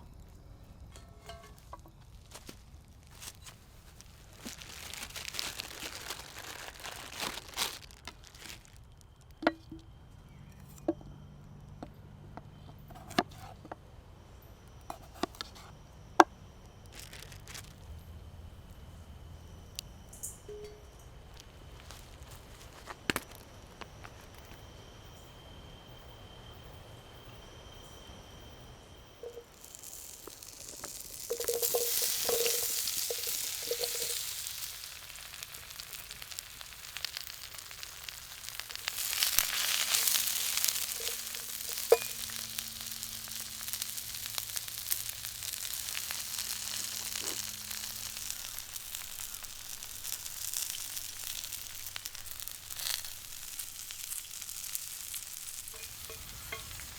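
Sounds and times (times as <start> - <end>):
food sizzling in a pan: 29.2 - 56.9.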